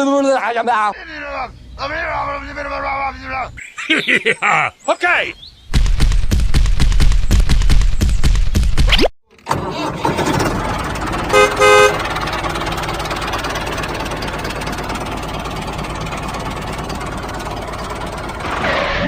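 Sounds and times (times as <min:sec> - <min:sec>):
tractor engine running: 0:05.7 - 0:19.0
horn toots: 0:11.2 - 0:12.2.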